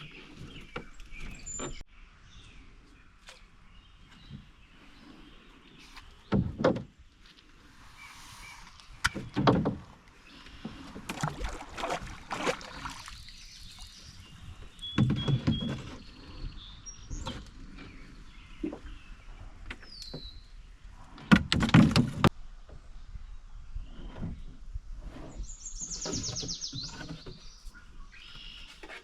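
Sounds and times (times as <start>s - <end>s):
faint birds chirping: 0.0s - 21.2s, 22.4s - 29.0s
paddle knocking canoe hull: 6.2s - 7.1s, 9.0s - 13.3s, 14.2s - 16.1s.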